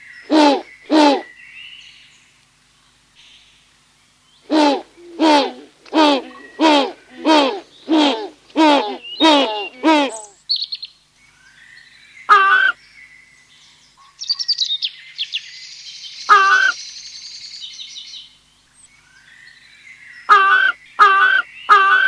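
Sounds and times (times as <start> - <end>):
bird calls: 4.4 - 11.0, 14.0 - 15.5, 16.2 - 17.0.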